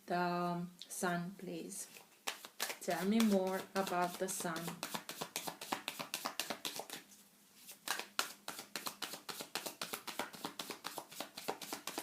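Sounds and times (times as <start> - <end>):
cards shuffled by hand: 1.9 - 12.0.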